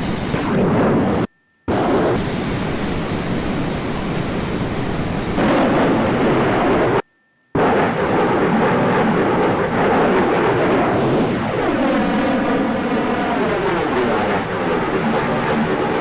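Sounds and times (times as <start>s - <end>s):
aircraft engine noise: 0.0s - 7.0s, 7.6s - 16.0s
airflow rush: 0.0s - 7.0s.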